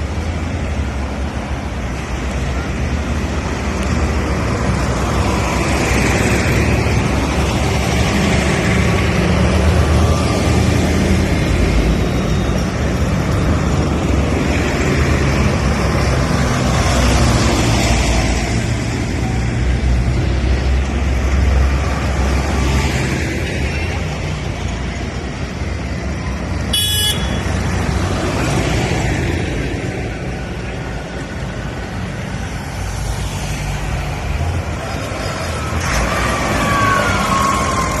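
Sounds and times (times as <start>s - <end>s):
tractor engines driving past: 0.0s - 38.0s
short horn toot: 26.7s - 27.5s.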